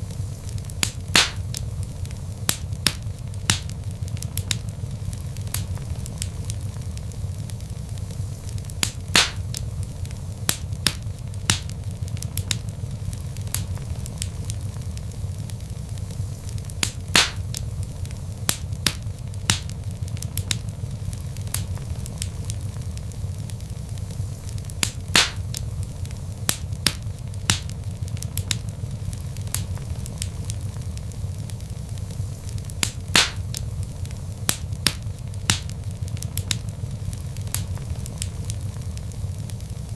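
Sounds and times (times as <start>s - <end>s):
logs burning in fireplace: 0.0s - 39.9s
loud fire pop: 0.8s - 1.7s, 2.5s - 4.7s, 8.8s - 9.6s, 10.5s - 11.8s, 16.8s - 17.6s, 18.5s - 19.8s, 24.8s - 25.6s, 26.5s - 27.8s, 32.8s - 33.6s, 34.5s - 36.7s.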